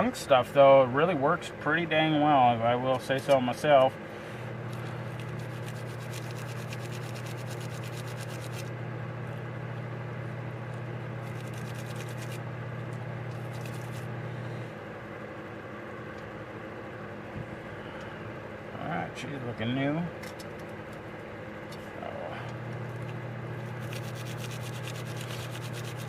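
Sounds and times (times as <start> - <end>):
steady low hum: 0.0 - 26.0
scratchy scrubbing: 4.9 - 8.7, 11.2 - 12.4, 13.4 - 14.1, 23.6 - 26.0.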